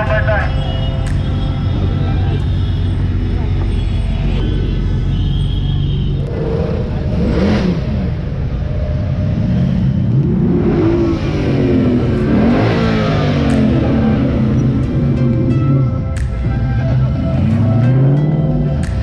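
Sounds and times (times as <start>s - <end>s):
sports car engine revving: 6.1s - 19.0s.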